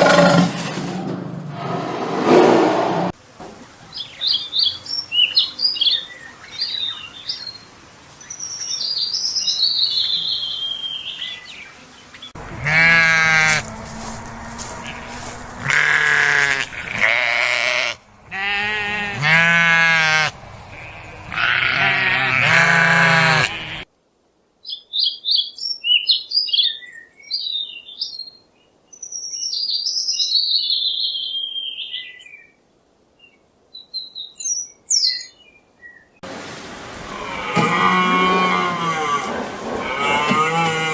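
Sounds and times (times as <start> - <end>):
livestock bleating: 12.4 - 23.9, 37.1 - 40.9.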